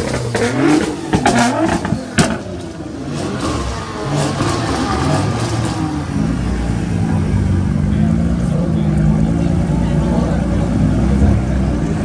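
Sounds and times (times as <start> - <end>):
car engines revving lightly: 0.0 - 12.0.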